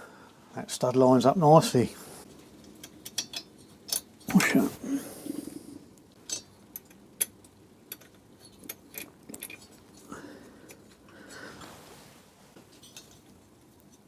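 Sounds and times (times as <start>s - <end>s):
light metallic clinks and taps: 6.2s - 11.0s, 12.7s - 14.0s.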